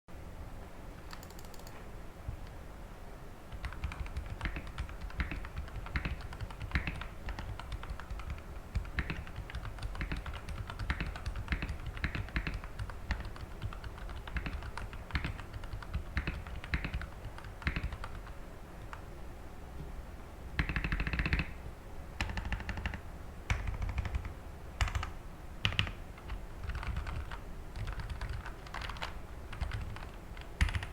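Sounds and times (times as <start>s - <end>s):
mechanical keyboard typing: 1.0s - 1.8s, 3.5s - 19.0s, 20.6s - 21.6s, 22.2s - 30.9s.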